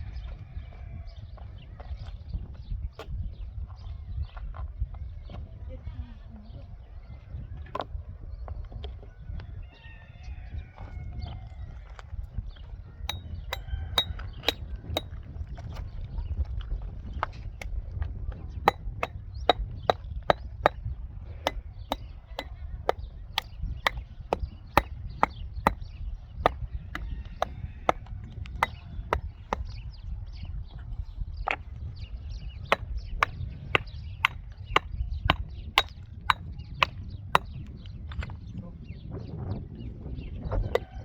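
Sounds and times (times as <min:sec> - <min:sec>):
hand tool chopping: 0:13.1 - 0:15.1, 0:32.7 - 0:37.5.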